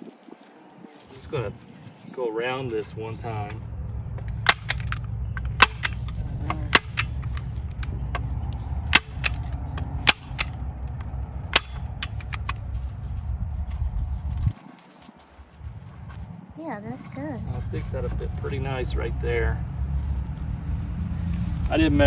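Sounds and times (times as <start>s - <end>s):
low steady rumble: 2.9s - 14.6s, 15.4s - 22.0s
staple gun snapping: 4.5s - 5.0s, 5.6s - 7.9s, 8.9s - 10.6s, 11.6s - 12.6s.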